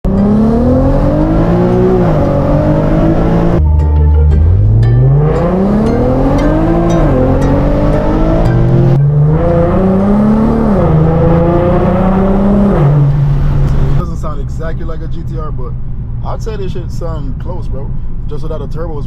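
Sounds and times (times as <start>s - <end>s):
car engine accelerating hard: 0.0s - 16.4s.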